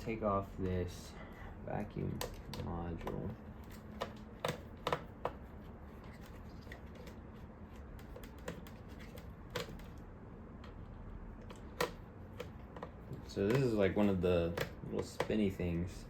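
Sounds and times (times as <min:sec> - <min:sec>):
screwdriver clicks and taps: 0:02.2 - 0:05.4, 0:08.0 - 0:10.0, 0:11.4 - 0:15.4.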